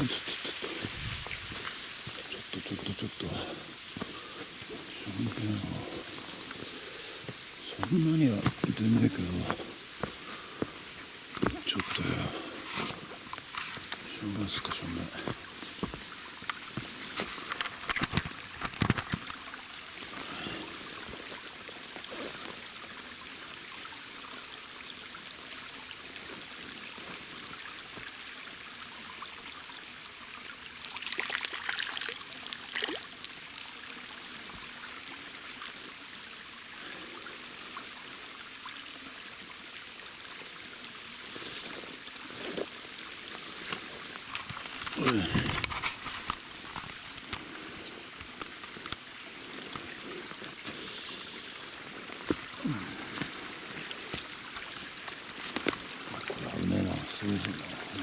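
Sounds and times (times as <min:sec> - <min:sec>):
flowing water: 0:00.0 - 0:58.0
water splashing: 0:30.6 - 0:34.8, 0:43.4 - 0:58.0.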